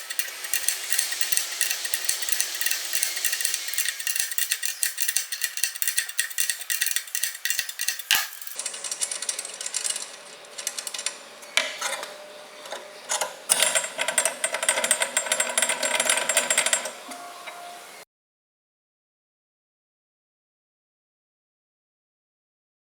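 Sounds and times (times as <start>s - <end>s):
hand tools clicking and scraping metal: 0.0s - 17.9s.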